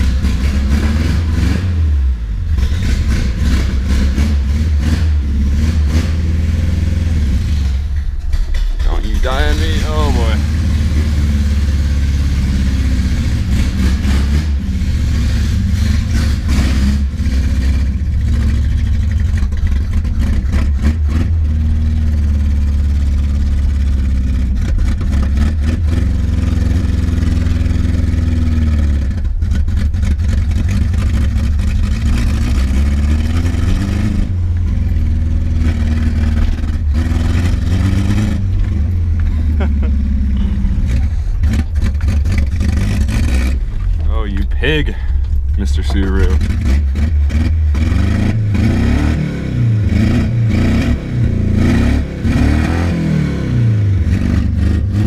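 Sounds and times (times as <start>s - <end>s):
car engine revving: 0.0s - 55.0s
person talking: 8.8s - 10.4s, 44.0s - 46.4s.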